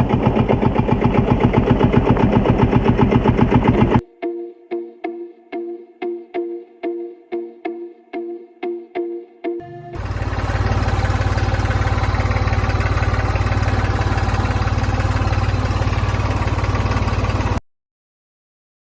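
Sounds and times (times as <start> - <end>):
model diesel engine running: 0.0 - 4.0, 9.6 - 17.6.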